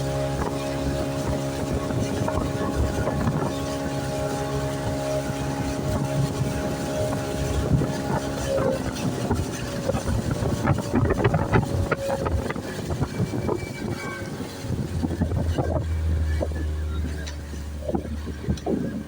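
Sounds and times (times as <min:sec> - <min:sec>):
deep low hum: 0:00.0 - 0:19.0
speedboat engine running: 0:00.0 - 0:19.0.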